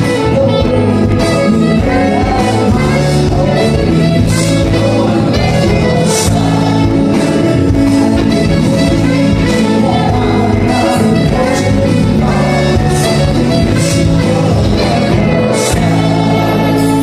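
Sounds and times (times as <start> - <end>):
live band playing: 0.0 - 17.0
person singing: 0.0 - 17.0.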